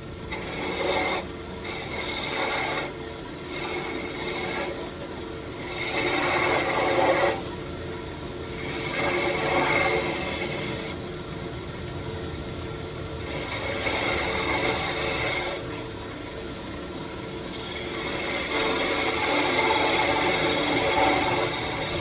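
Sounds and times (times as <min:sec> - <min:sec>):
lathe humming: 0:00.0 - 0:22.0
turning tool cutting wood: 0:00.1 - 0:07.5, 0:08.4 - 0:11.0, 0:13.1 - 0:15.7, 0:17.4 - 0:22.0.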